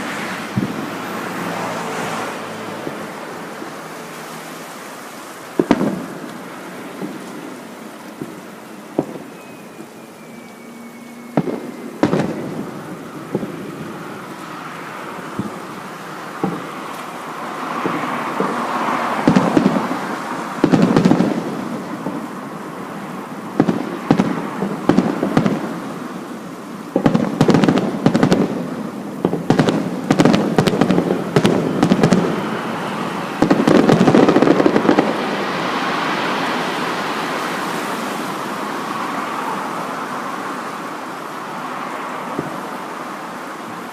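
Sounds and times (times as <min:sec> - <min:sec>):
fireworks crackling: 0:00.0 - 0:43.9
firework shells bursting: 0:05.5 - 0:14.6, 0:26.9 - 0:36.6.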